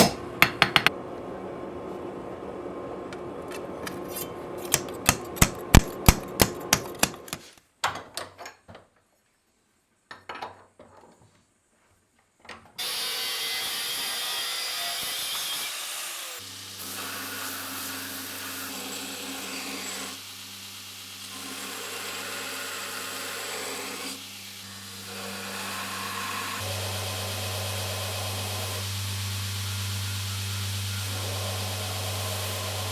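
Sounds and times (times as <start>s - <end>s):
hammer blows on hot steel: 4.7s - 7.4s
power grinder grinding steel: 12.8s - 32.9s
low motor hum: 25.2s - 32.9s.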